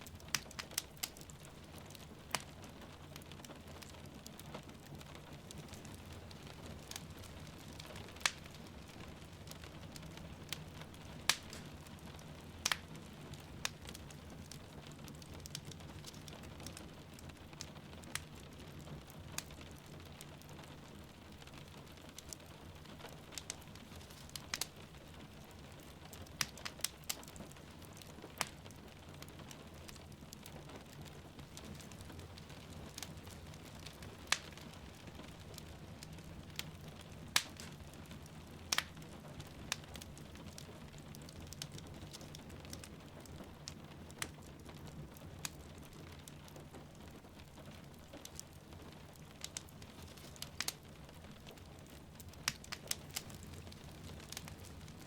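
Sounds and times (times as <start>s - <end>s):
fire popping: 0.0s - 55.0s
wood fire crackling: 0.0s - 55.0s.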